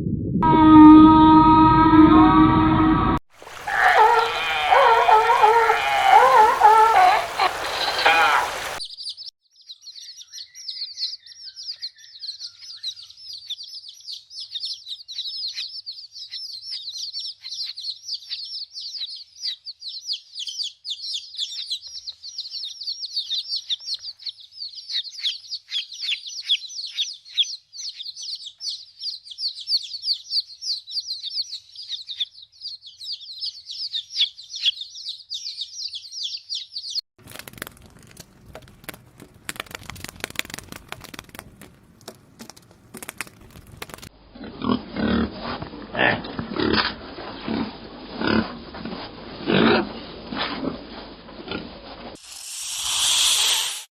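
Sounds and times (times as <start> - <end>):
small birds chirping: 3.6 - 37.0.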